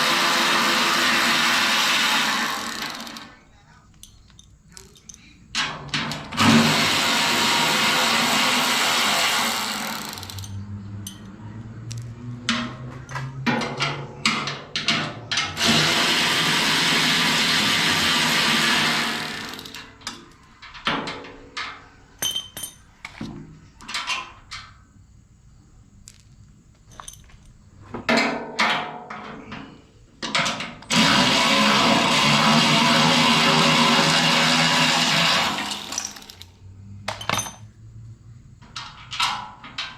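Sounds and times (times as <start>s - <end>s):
power drill running: 0.0s - 3.4s, 6.4s - 10.4s, 15.6s - 20.0s, 30.9s - 36.4s
metal parts knocking and clinking: 3.9s - 6.4s, 9.8s - 15.6s, 19.4s - 23.2s, 26.0s - 29.6s, 35.7s - 37.7s, 38.6s - 39.9s.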